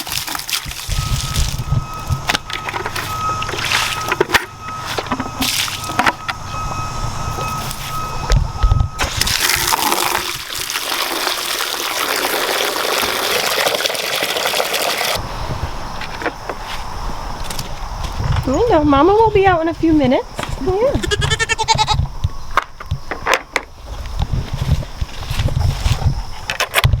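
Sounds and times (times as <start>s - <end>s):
hose running water into bucket: 0.0s - 2.0s, 3.0s - 4.2s, 5.4s - 6.0s, 9.0s - 15.2s.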